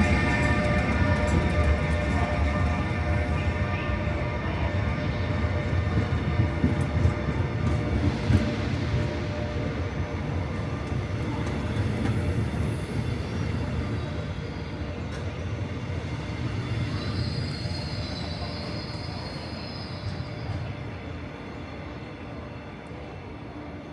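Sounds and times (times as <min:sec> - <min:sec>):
train wheels rumbling over rails: 0:00.0 - 0:23.9
high wheel squeal: 0:16.6 - 0:20.7.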